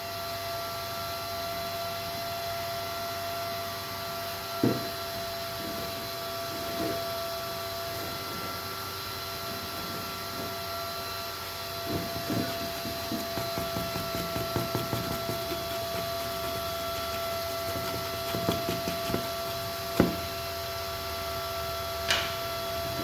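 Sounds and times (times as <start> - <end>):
objects handled on a workbench: 11.9 - 20.4.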